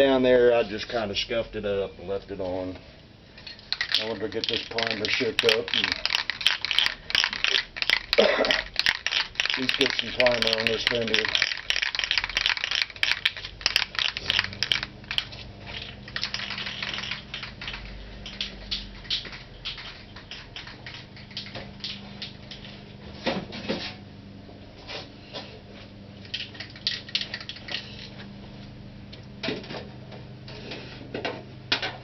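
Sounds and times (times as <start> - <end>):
steady low hum: 0.0 - 32.0
spray can ball rattling: 3.5 - 22.7, 26.2 - 28.1.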